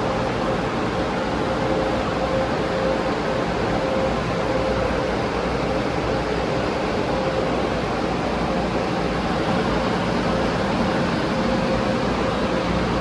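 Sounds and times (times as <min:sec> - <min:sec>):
car wash sprays and machinery: 0:00.0 - 0:13.0.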